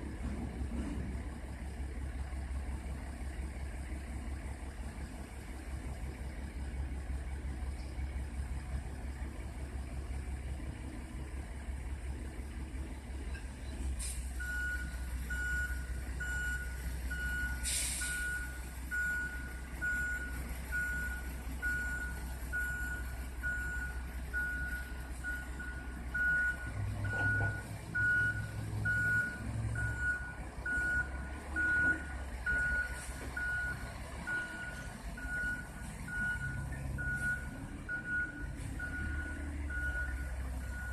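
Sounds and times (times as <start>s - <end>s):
garbage truck engine rumbling: 0.0s - 40.9s
reversing alarm beeping: 14.4s - 40.9s
air hiss: 17.6s - 18.2s.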